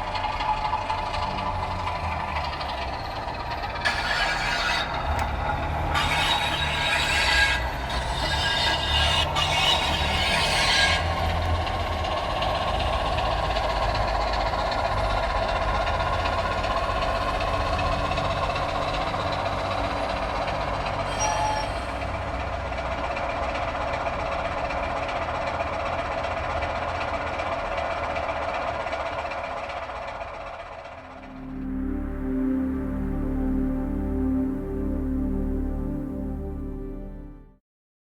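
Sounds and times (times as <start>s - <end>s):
wheel squeal: 0.0s - 29.6s
train rumbling: 0.0s - 32.0s.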